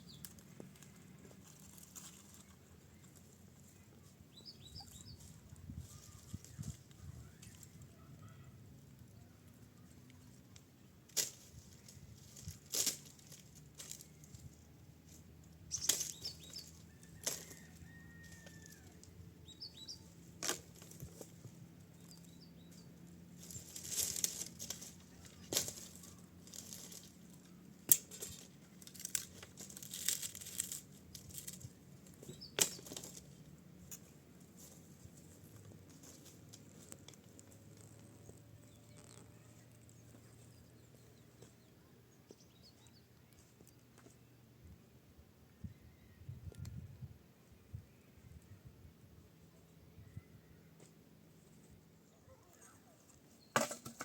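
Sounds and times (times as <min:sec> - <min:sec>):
faint bird chirps: 0:02.3 - 0:10.0
materials rustling and crinkling: 0:23.4 - 0:39.9.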